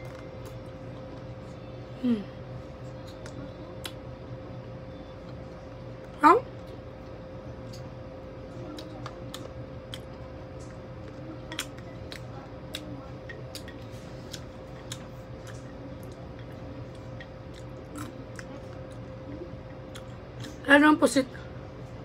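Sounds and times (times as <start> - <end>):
faint hum: 0.0 - 22.0
chewing and biting fried meat: 8.6 - 20.6.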